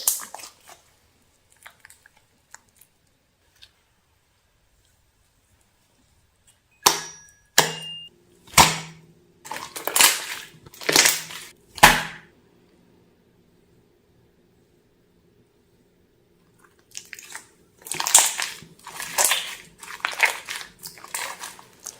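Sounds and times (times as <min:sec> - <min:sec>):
slime popping and crackling: 0:08.5 - 0:12.2, 0:16.9 - 0:21.9.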